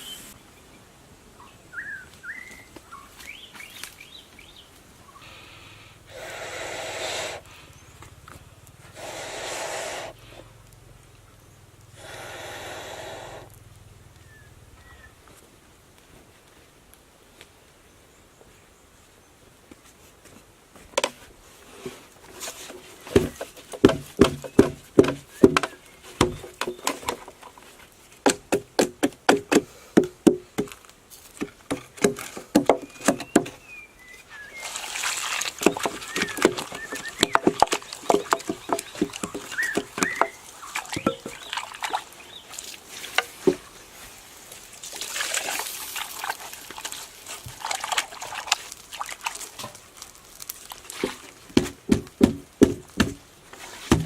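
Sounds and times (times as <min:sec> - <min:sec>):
sharp knocks on wood: 0:23.1 - 0:27.0, 0:28.2 - 0:30.8, 0:31.4 - 0:33.6, 0:51.0 - 0:53.2
water pouring and splashing: 0:34.3 - 0:52.0.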